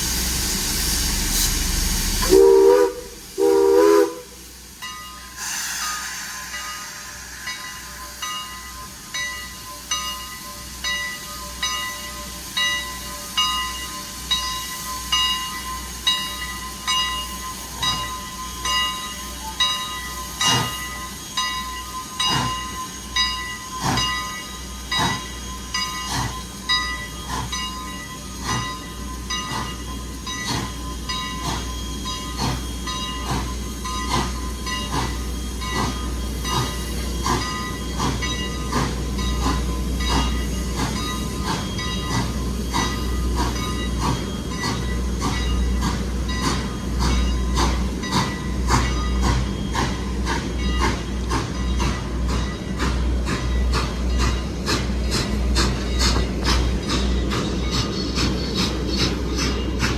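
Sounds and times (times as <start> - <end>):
steam exhaust chuffs: 0.0 - 9.1, 22.1 - 59.9
locomotive bell ringing: 4.8 - 59.9.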